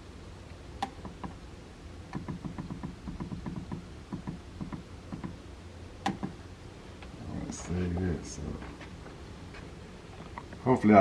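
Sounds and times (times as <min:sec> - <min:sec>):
thermostat button clicks: 0:06.0 - 0:06.4.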